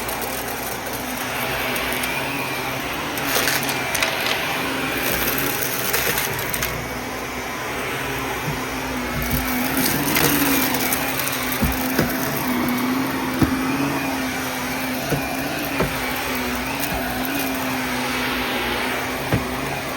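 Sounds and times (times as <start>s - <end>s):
vacuum cleaner running: 0.0s - 19.9s.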